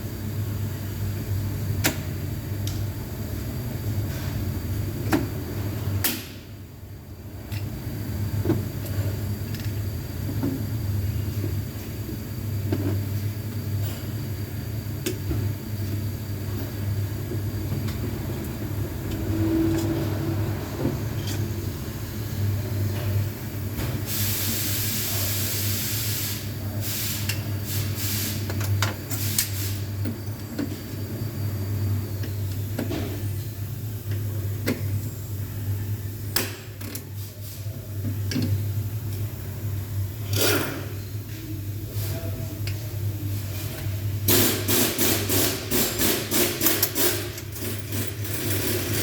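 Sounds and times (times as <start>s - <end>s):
loud air hiss: 24.1s - 28.4s.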